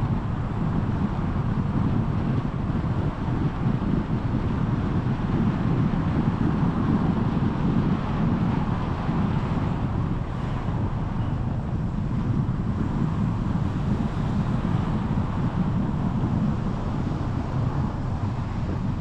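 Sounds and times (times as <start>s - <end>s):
car road and wind noise: 0.0s - 19.0s.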